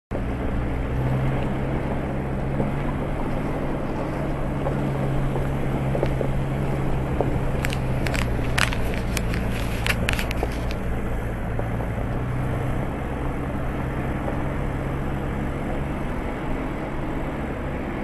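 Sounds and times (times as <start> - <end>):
vehicle engine droning: 0.1 - 18.0
sharp clicks and knocks: 4.5 - 12.3.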